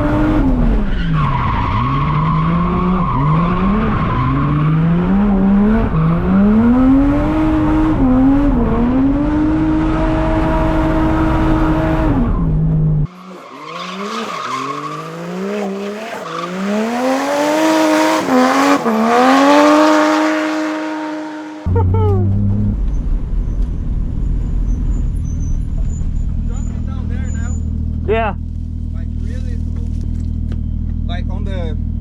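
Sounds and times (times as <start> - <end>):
car engine revving: 0.0 - 32.0
tyres squealing: 13.1 - 17.2, 24.7 - 27.8.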